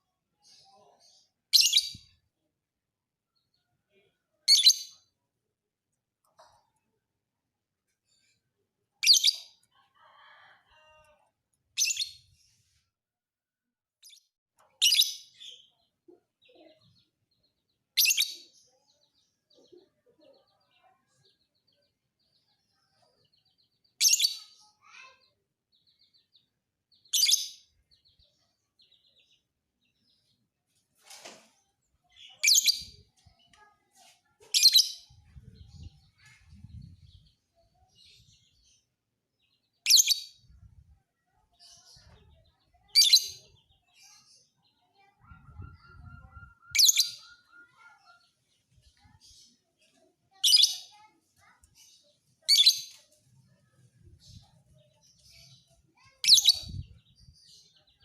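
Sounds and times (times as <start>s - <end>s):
faint bird twittering: 41.2s - 48.3s
lovebird high chirps: 45.4s - 47.9s, 56.2s - 56.9s.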